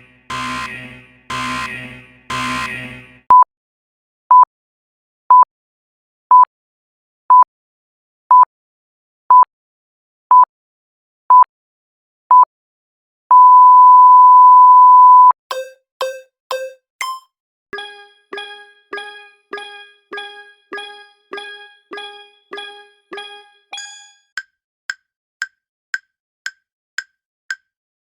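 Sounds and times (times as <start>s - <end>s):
electronic sine-tone beeps: 0.3s - 3.0s, 15.5s - 17.2s.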